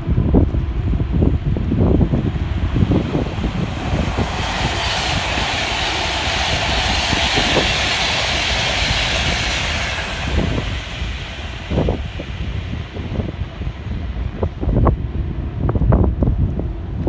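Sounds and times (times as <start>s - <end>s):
express train passing at speed: 0.0s - 17.0s
wind buffeting microphone: 0.0s - 17.0s.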